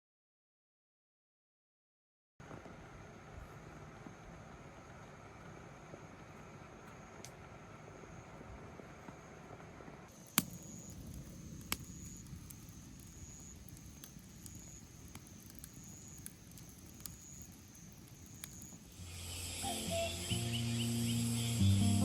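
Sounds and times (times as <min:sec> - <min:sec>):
sharp clicks: 0:10.2 - 0:19.0
faint high chirp: 0:14.4 - 0:22.0
music: 0:19.1 - 0:22.0.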